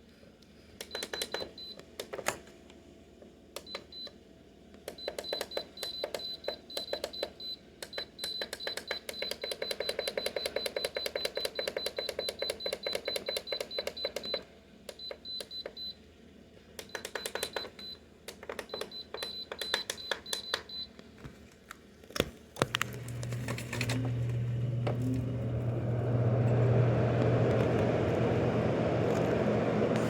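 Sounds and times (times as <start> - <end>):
air conditioner humming: 0.0 - 30.0
control panel clicking and beeping: 0.8 - 2.4, 3.6 - 4.2, 4.9 - 15.9, 16.8 - 21.0
fan airflow noise: 22.1 - 30.0.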